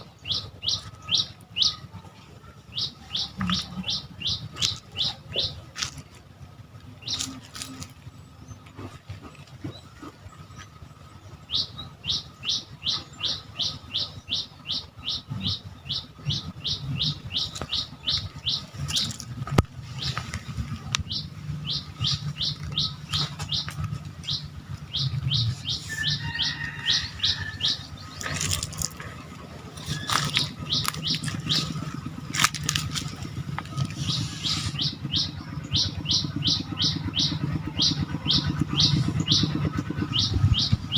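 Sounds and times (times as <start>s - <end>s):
steady low hum: 0.0s - 40.9s
bird calling high repeated notes: 21.0s - 40.9s.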